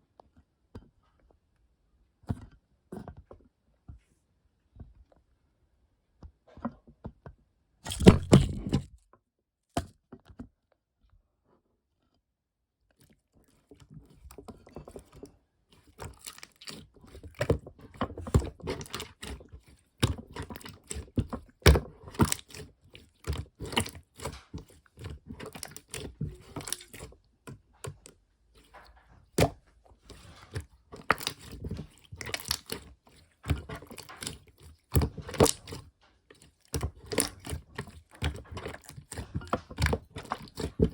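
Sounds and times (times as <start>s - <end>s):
slime squishing: 7.9s - 8.8s, 12.9s - 40.9s.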